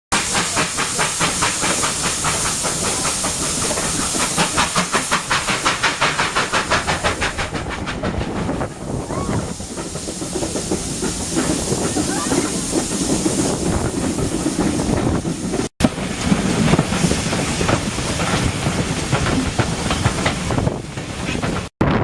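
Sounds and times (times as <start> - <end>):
steam hissing: 0.1 - 21.7
steam locomotive chuffing: 0.1 - 21.7
train rumbling: 0.1 - 22.0
faint squeals: 9.0 - 9.5.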